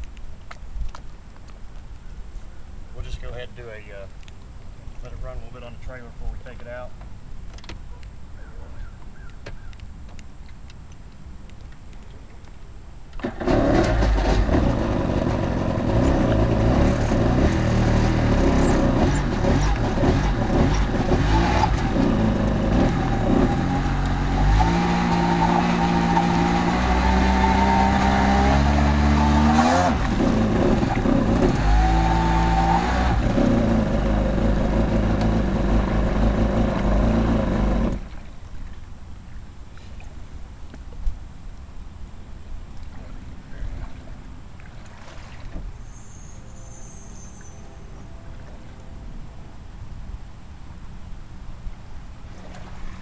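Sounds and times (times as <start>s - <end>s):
jet ski engine revving: 13.2s - 38.2s.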